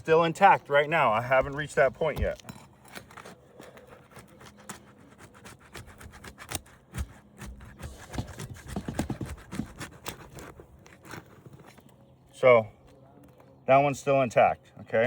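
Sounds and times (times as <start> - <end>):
hand tools scraping shingles: 0.0 - 11.9.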